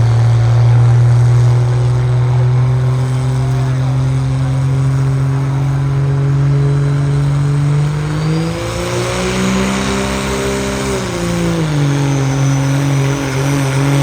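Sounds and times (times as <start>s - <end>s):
truck engine running and revving: 0.0s - 14.0s.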